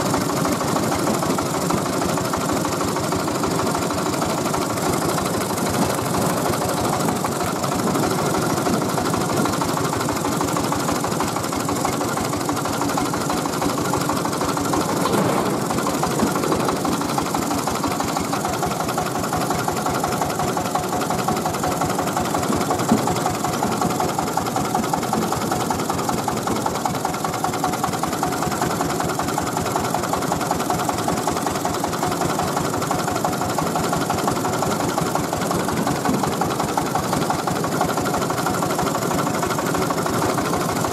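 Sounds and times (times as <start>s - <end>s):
diesel engine running: 3.0s - 25.2s.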